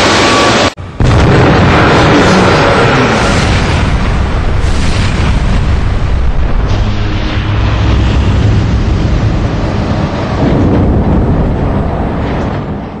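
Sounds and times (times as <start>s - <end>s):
jet engine roaring: 0.0s - 13.0s.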